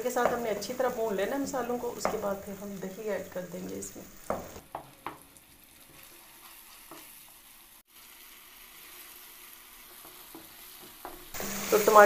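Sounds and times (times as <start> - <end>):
sauce sizzling in oil: 0.0 - 12.0
wooden spatula scraping: 5.8 - 7.6.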